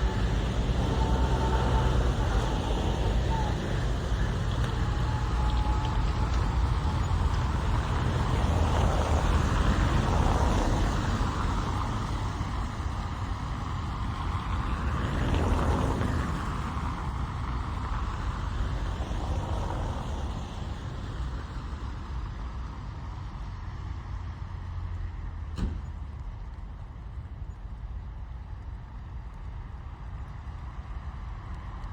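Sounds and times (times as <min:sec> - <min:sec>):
rain on a car: 0:00.0 - 0:27.4
steady low rumble: 0:00.0 - 0:31.9
traffic passing on wet road: 0:00.0 - 0:31.9.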